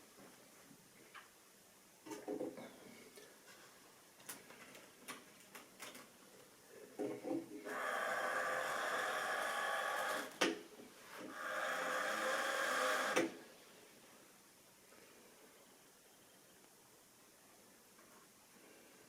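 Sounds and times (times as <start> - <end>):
small clicks and knocks: 4.2 - 6.2
model train motor whirring: 7.6 - 10.4, 11.2 - 13.3.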